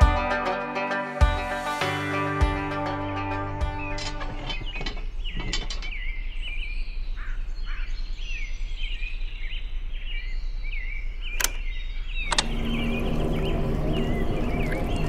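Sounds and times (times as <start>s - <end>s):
small birds chirping: 3.6s - 15.0s
sharp clicks: 11.4s - 11.6s, 12.2s - 12.6s.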